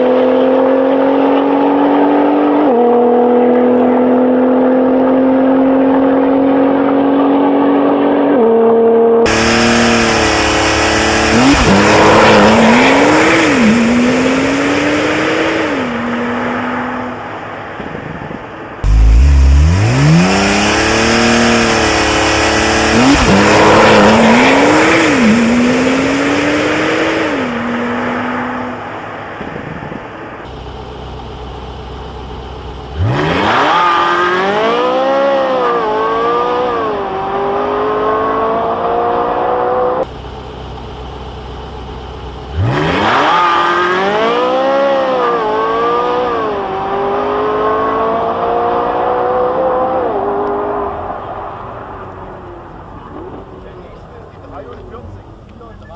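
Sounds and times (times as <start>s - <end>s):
car engine accelerating through gears: 0.0s - 17.3s, 18.8s - 28.9s, 30.5s - 54.1s
engine sound: 9.2s - 17.2s, 18.8s - 27.9s, 30.5s - 36.7s, 39.5s - 46.2s.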